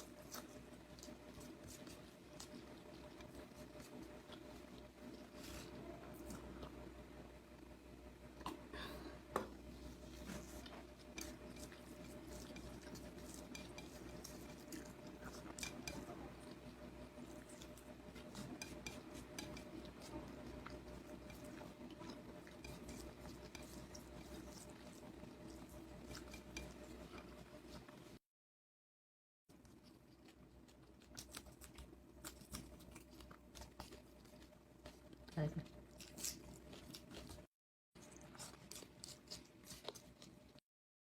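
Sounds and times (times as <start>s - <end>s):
steady low hum: 0.0s - 28.2s.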